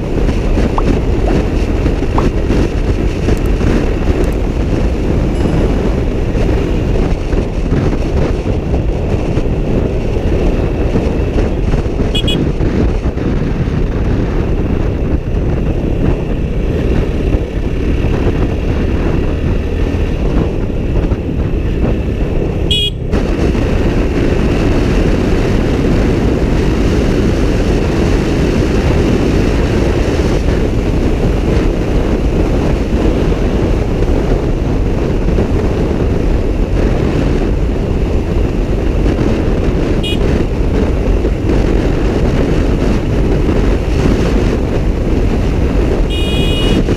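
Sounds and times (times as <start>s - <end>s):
road noise: 0.0s - 46.9s
wind buffeting: 0.0s - 46.9s
motorcycle horn toots: 5.3s - 5.9s, 12.1s - 12.6s, 22.6s - 23.1s, 40.0s - 40.5s, 46.0s - 46.9s.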